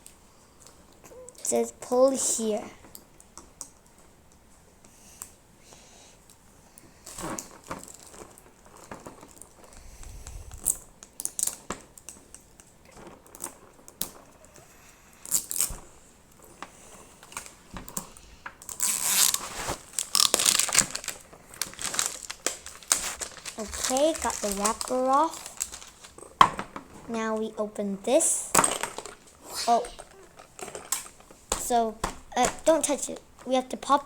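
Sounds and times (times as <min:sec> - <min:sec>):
plastic wrapper tearing and crinkling: 0:18.6 - 0:26.4.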